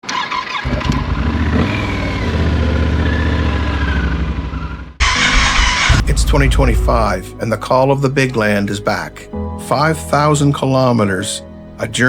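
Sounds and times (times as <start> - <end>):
motorcycle engine rumbling: 0.7 - 9.1
rushing noise: 5.0 - 7.4.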